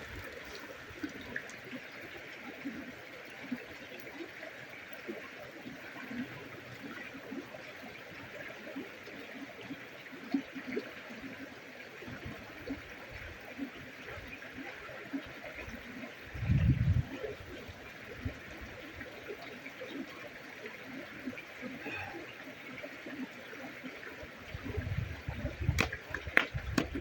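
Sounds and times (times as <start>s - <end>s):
water running steadily: 0.0s - 27.0s
faint clicks and pops: 24.6s - 27.0s.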